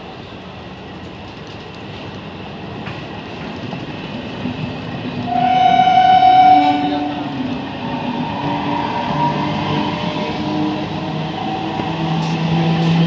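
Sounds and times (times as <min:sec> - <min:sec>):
electric train rumbling: 0:00.0 - 0:13.0
train horn blast: 0:05.3 - 0:07.4.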